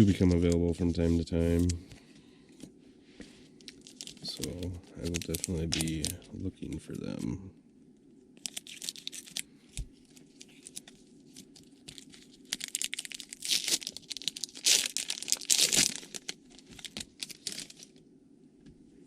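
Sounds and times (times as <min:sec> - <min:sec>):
wrapper tearing and crinkling: 0:03.7 - 0:06.2, 0:08.4 - 0:18.0.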